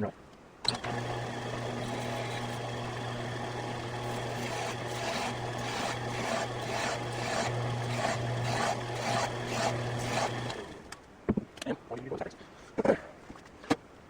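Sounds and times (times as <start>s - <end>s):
lathe motor hum: 0.7s - 10.9s
tool scraping spinning metal: 0.8s - 10.9s.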